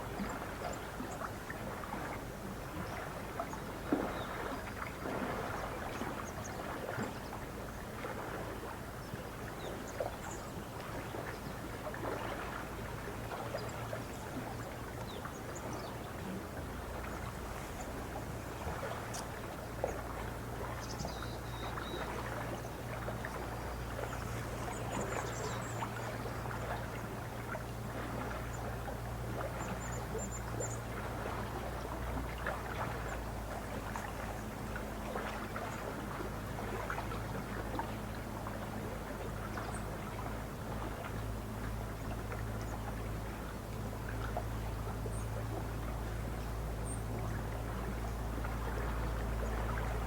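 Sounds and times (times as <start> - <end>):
small waves lapping: 0.0 - 50.0
faint bird chirps: 20.8 - 22.1.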